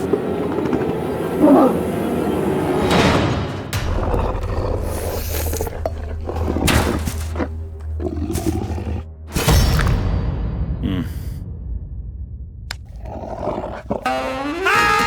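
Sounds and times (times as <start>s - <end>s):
cartoon background music: 14.0s - 15.0s.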